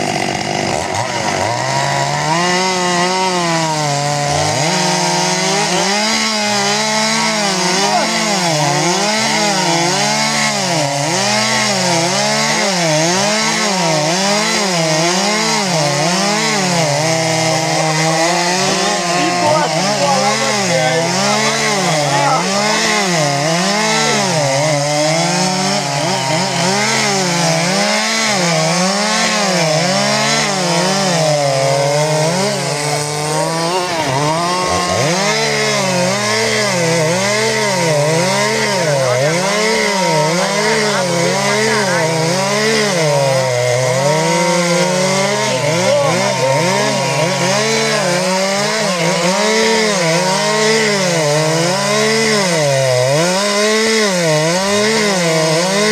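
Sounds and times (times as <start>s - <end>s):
chainsaws cutting wood: 0.0s - 55.9s.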